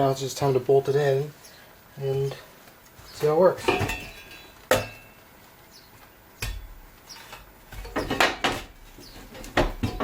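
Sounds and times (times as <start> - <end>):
metal tools clanking on steel: 3.0 - 5.2, 6.4 - 10.0.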